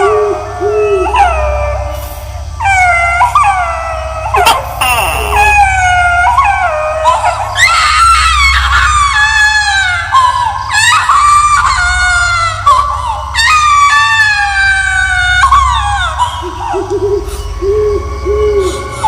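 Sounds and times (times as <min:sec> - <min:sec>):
low drone: 0:00.0 - 0:19.0
baby screaming and wailing: 0:02.6 - 0:17.0.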